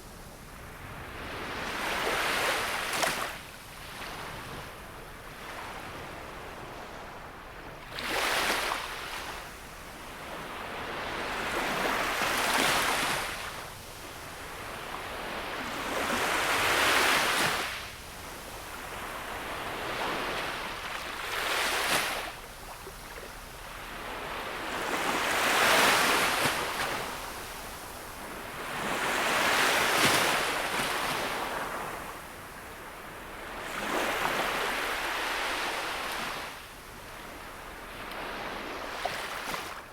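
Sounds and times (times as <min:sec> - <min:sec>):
sea waves breaking on shore: 0:37.8 - 0:39.9.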